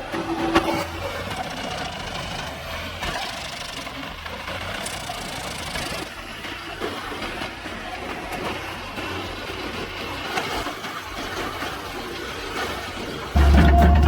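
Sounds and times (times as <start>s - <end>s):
heavy machine engine running: 13.3s - 14.0s
sharp knocks: 13.4s - 14.0s.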